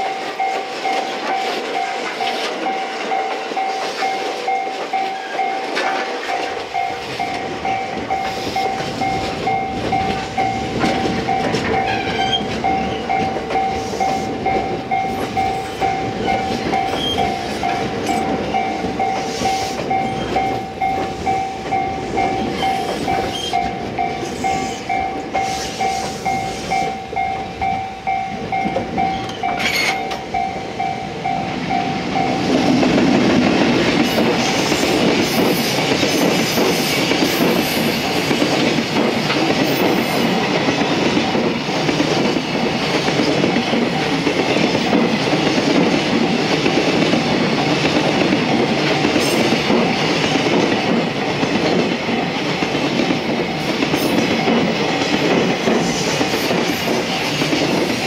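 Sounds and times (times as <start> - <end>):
ringing signal tone: 0.0 - 32.6
train wheels clattering: 0.0 - 58.0.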